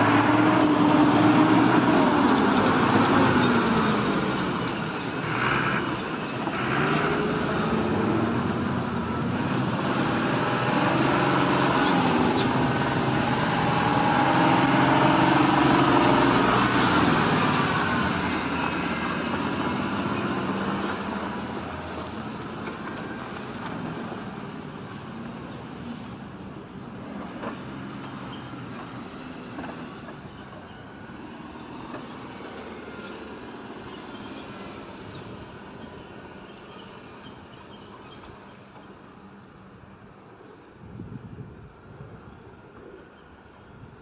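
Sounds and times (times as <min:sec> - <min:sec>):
heavy truck engine revving: 0:00.0 - 0:25.7.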